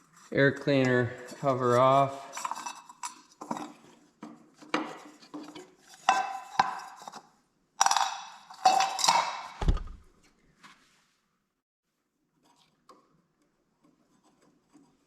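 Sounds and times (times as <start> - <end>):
dull thump: 9.6 - 10.1.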